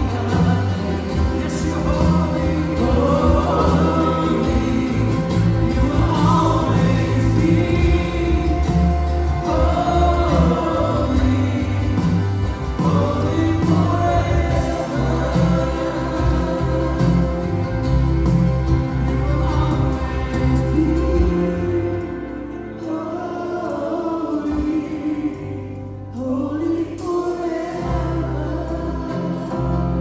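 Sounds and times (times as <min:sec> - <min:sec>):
choir singing with band: 0:00.0 - 0:30.0
steady bass: 0:00.0 - 0:30.0.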